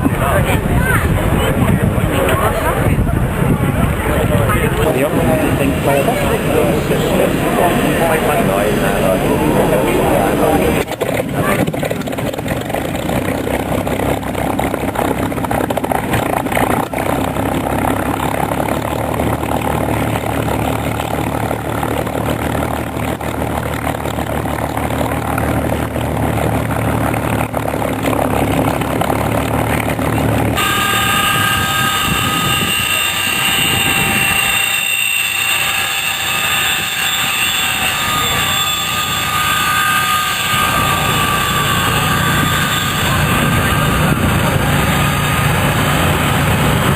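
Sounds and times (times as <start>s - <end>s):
aircraft engine noise: 0.0s - 46.9s
high whining aircraft tones: 0.0s - 46.9s.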